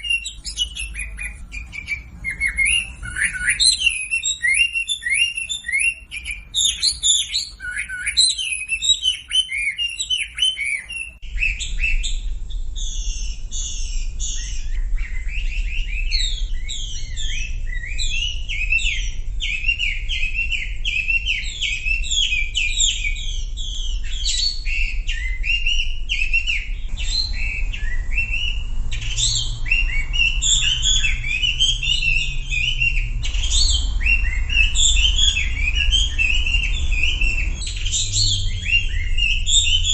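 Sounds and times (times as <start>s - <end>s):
low hum: 25.8s - 39.9s.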